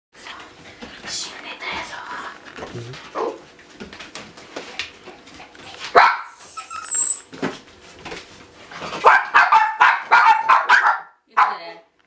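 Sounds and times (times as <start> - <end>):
puppy yapping: 3.1 - 3.4, 5.9 - 7.3, 9.0 - 11.7
high squeak: 6.2 - 7.3.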